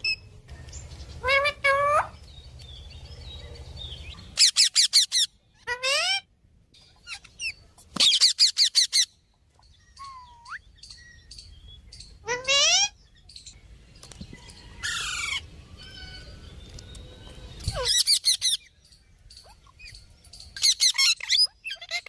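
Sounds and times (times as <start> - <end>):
parrots calling: 1.2 - 2.3, 4.1 - 11.3, 12.0 - 13.2, 14.8 - 16.4, 17.5 - 18.7, 19.4 - 22.0.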